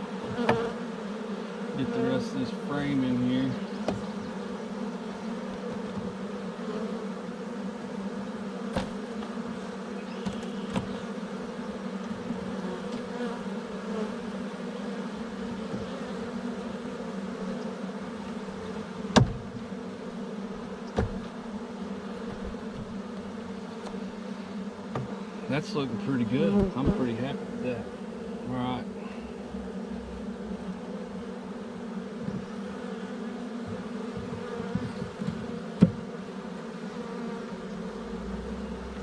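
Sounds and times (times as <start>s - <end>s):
bee swarm buzzing: 0.0s - 39.0s.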